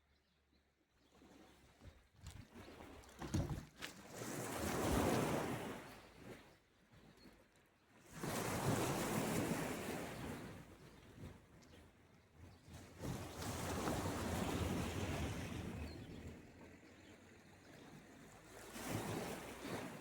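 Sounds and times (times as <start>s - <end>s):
sea waves breaking: 13.0s - 15.8s, 18.2s - 20.0s.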